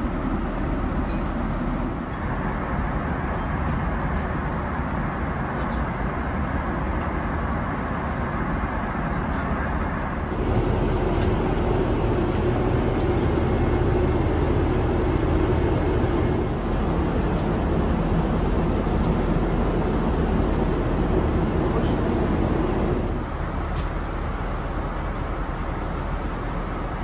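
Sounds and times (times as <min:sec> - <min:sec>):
jet engine noise in cabin: 0:00.0 - 0:27.0
steady hum: 0:00.0 - 0:27.0.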